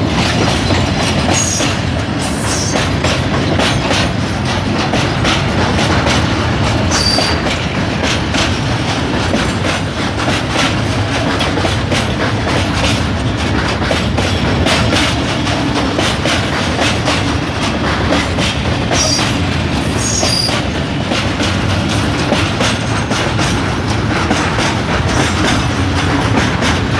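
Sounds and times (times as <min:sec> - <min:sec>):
train wheels clattering: 0:00.0 - 0:26.9
high wheel squeals: 0:01.4 - 0:02.8, 0:06.8 - 0:07.4, 0:19.0 - 0:20.6.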